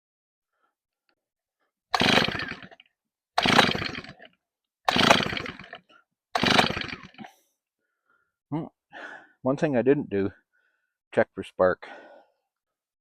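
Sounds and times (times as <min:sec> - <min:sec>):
engine cranking: 0:01.9 - 0:02.8, 0:03.4 - 0:07.3
chainsaw starter rope pulls: 0:01.9 - 0:07.4.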